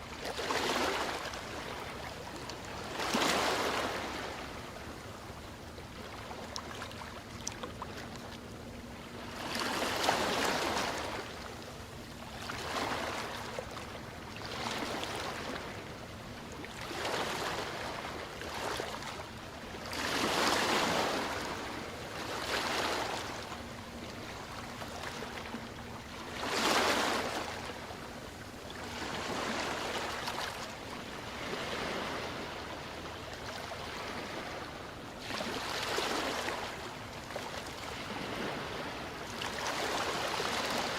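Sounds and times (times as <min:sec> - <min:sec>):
ocean waves washing in: 0:37.8 - 0:40.9.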